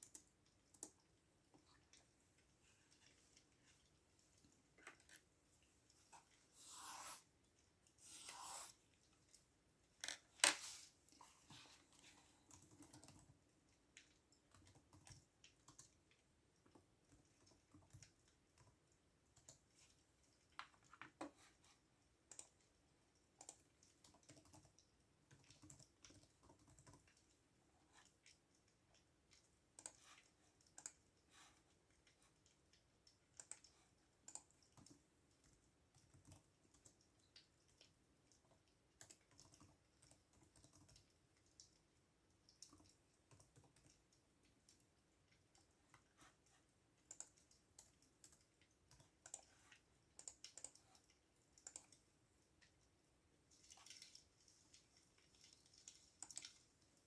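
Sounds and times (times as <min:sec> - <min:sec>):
computer keyboard typing: 0:00.0 - 0:01.2, 0:12.4 - 0:13.5, 0:14.1 - 0:19.9, 0:22.2 - 0:27.4, 0:28.0 - 0:31.2, 0:33.0 - 0:41.8, 0:42.5 - 0:45.8, 0:47.0 - 0:52.1, 0:55.8 - 0:56.7.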